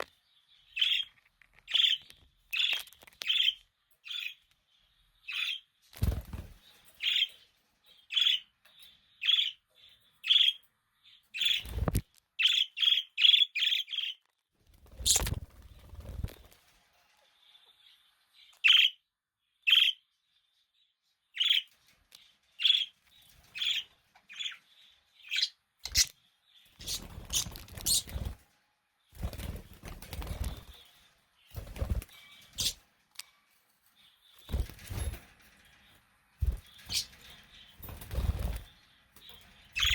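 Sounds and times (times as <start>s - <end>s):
budgerigars chirping: 25.3s - 26.1s, 26.8s - 28.4s, 32.5s - 32.8s, 36.5s - 37.2s.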